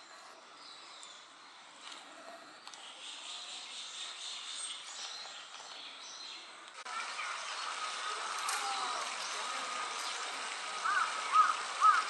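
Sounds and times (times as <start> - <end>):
outdoor background noise: 0.0 - 12.0
bird calling arched notes: 6.9 - 12.0.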